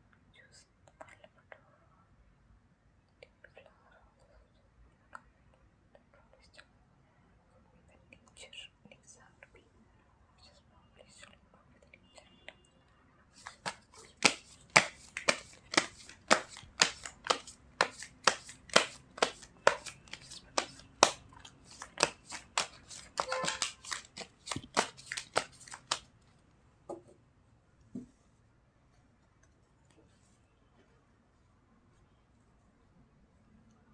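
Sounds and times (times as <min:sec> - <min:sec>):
cards being shuffled: 0:13.4 - 0:26.1.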